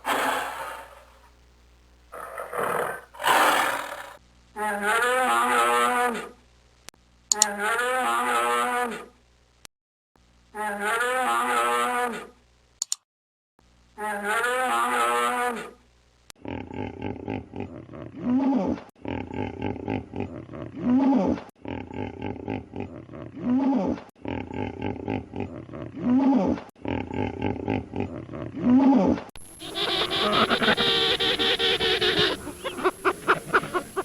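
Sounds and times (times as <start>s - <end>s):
animal calls: 0.0s - 1.3s, 2.2s - 4.2s, 29.4s - 34.0s.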